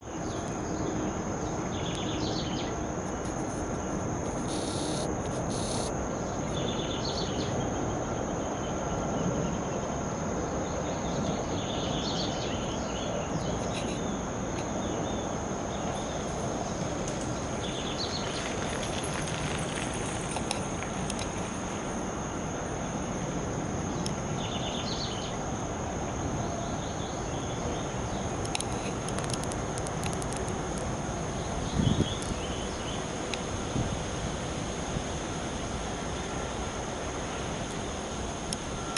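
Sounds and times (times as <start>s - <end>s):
high insect trill: 0.0s - 38.9s
sharp ticks: 4.4s - 5.9s.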